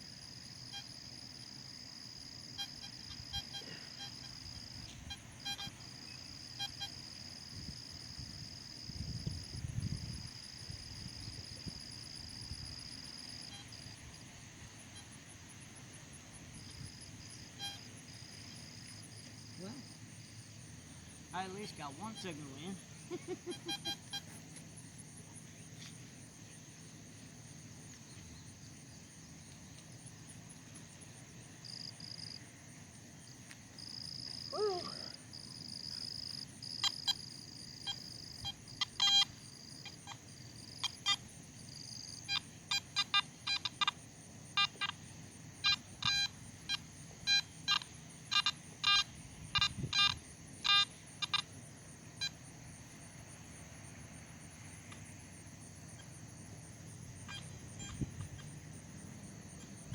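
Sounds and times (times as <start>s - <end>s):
metal detector beeping: 5.1s - 5.8s, 23.5s - 24.4s, 37.9s - 39.4s, 45.6s - 51.5s, 57.3s - 58.4s.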